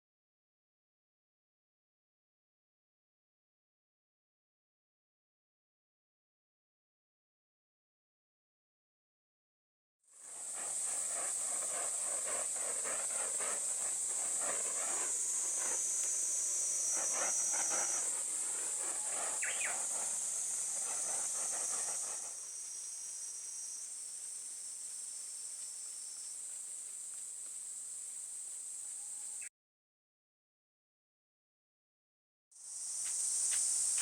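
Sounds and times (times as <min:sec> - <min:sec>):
high-pitched insect chirring: 0:10.4 - 0:29.5.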